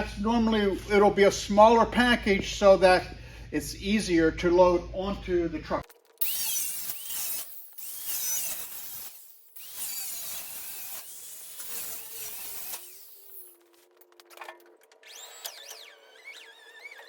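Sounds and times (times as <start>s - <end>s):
power tool whining: 6.1s - 17.0s.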